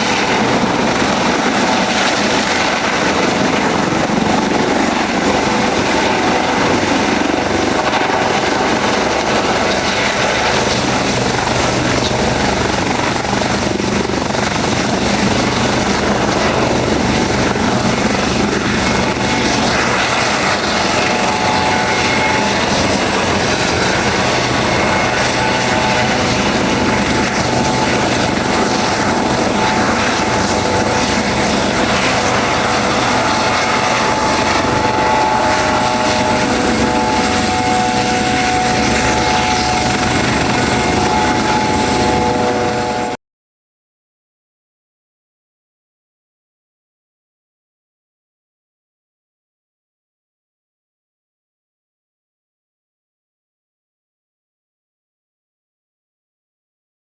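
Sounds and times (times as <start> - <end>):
helicopter rotor and engine: 0.0 - 43.2.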